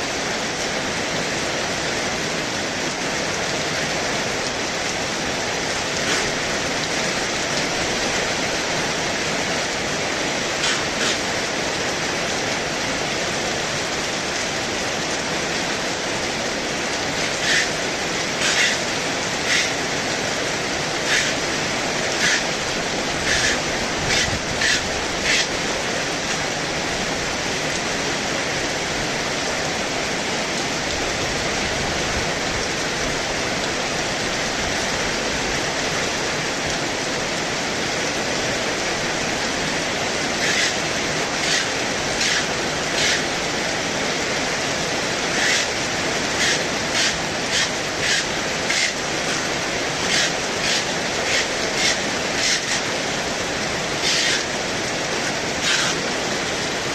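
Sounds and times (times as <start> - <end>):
heavy rain pouring: 0.0 - 56.9.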